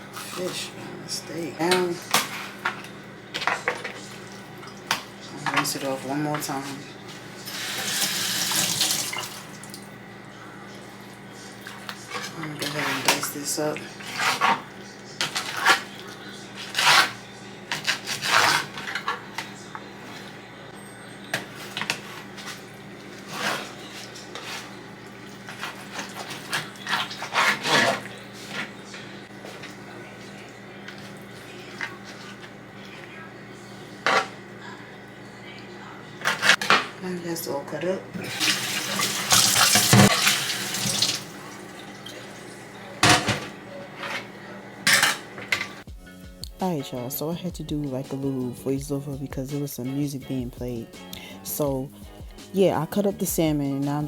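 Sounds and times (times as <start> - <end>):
tap running into sink: 38.4 - 41.2.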